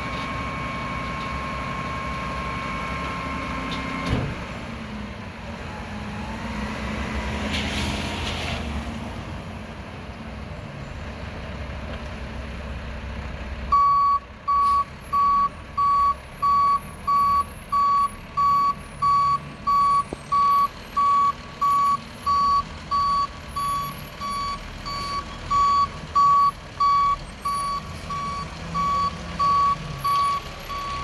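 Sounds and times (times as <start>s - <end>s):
truck backup alarm beeping: 0.0s - 3.4s, 13.7s - 31.0s.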